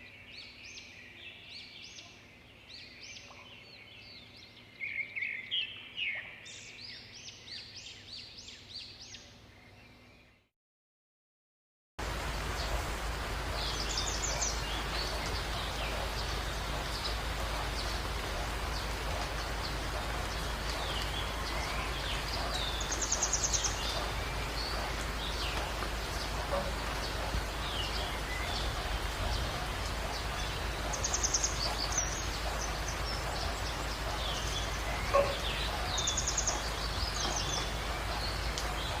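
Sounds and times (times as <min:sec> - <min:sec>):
background hiss: 0:12.0 - 0:39.0
birds chirping and whistling: 0:13.6 - 0:39.0.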